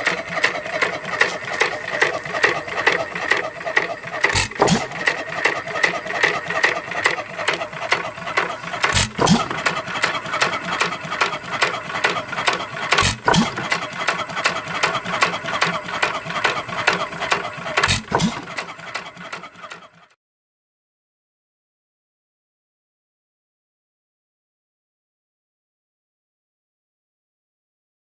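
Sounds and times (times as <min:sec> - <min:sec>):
hit-and-miss engine clattering: 0:00.0 - 0:20.1.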